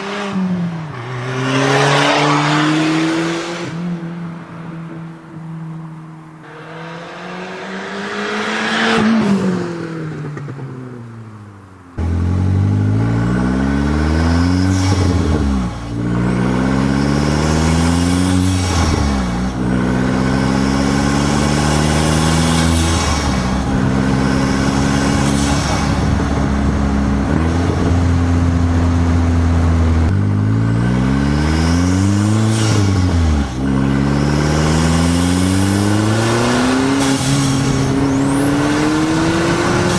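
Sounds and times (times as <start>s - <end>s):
car engine revving: 0.0s - 39.9s
engine accelerating through gears: 12.0s - 39.9s.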